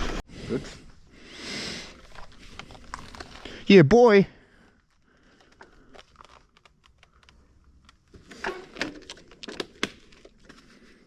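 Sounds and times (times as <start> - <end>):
clicking and rustling of gear: 2.0 - 3.6, 4.7 - 11.0.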